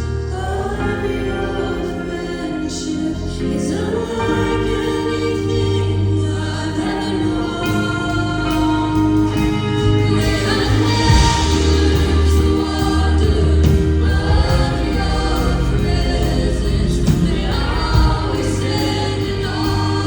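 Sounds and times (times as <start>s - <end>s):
steady bass: 0.0s - 20.0s
sustained instrumental chords: 0.0s - 20.0s
voices singing worship music: 0.0s - 20.0s.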